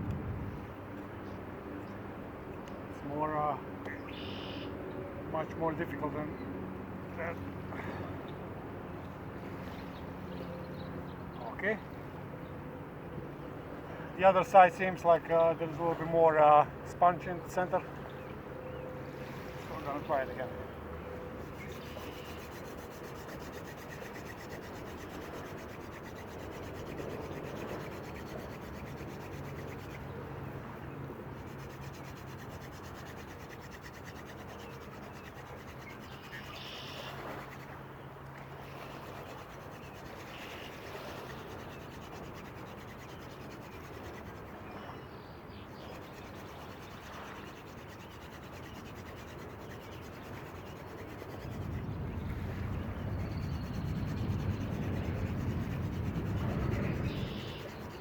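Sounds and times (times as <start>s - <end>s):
wooden spindle rubbing on board: 21.3s - 30.1s, 31.3s - 37.8s, 38.7s - 44.6s, 45.8s - 58.0s.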